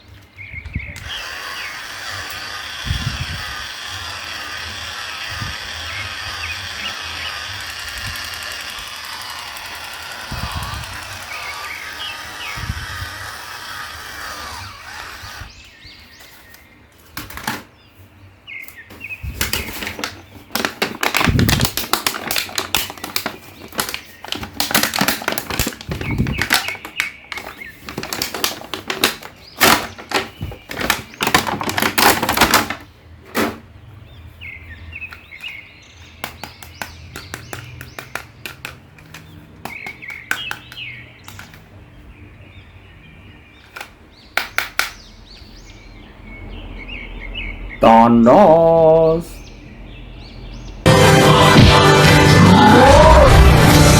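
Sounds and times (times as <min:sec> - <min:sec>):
plastic packaging crinkling: 0:19.4 - 0:32.9.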